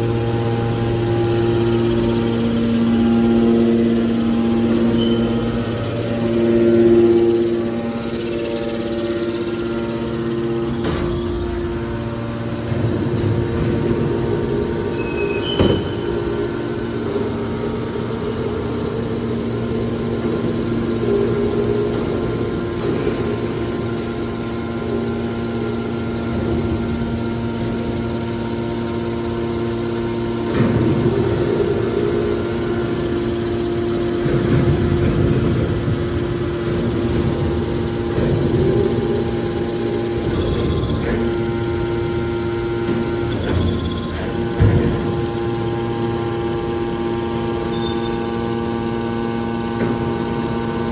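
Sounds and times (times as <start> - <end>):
hydraulic baler humming: 0.0 - 50.9.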